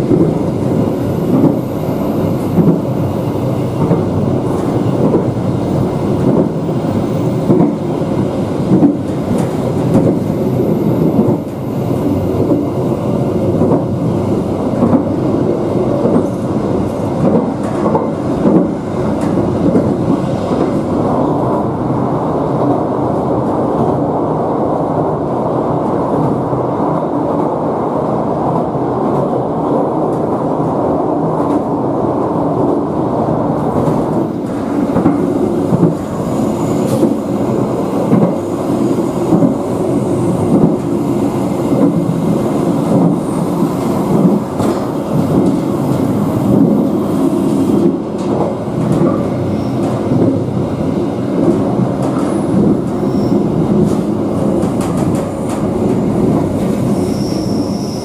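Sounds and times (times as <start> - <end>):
train clattering: 0.0 - 3.0, 3.6 - 10.3, 15.9 - 21.0, 33.6 - 57.7
train wheels rumbling on rails: 0.0 - 58.0.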